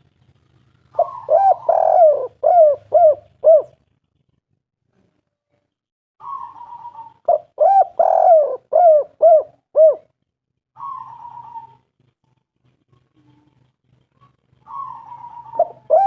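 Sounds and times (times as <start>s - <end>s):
dove cooing: 0.8s - 3.8s, 6.2s - 10.2s, 10.8s - 16.0s.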